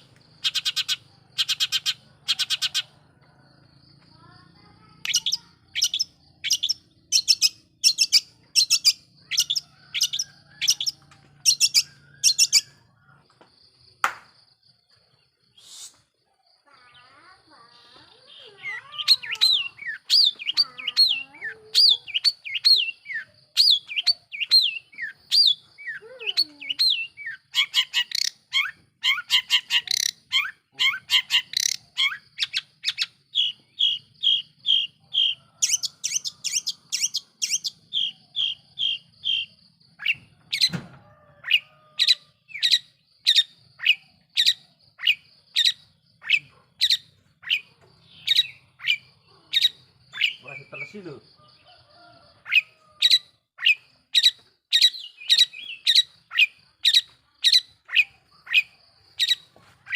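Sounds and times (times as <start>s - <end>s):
shrike singing: 17.9s - 39.5s, 42.5s - 52.8s.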